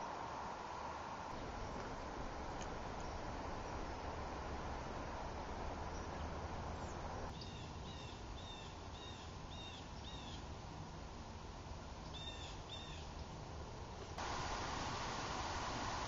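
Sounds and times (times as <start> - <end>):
outdoor background hiss: 0.0 - 16.0
bird chirping: 5.9 - 10.5, 12.1 - 13.1.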